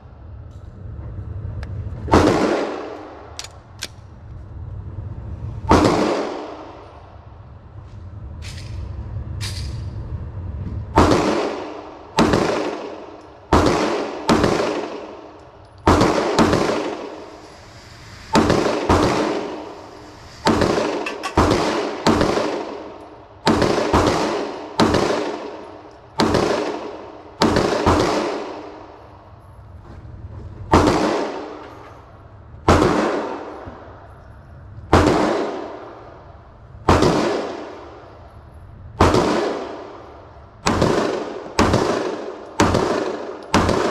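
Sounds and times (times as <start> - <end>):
gunshots with long echo: 2.0 - 3.4, 5.6 - 7.4, 10.9 - 29.2, 30.7 - 31.8, 32.6 - 34.1, 34.9 - 38.3, 38.9 - 43.9.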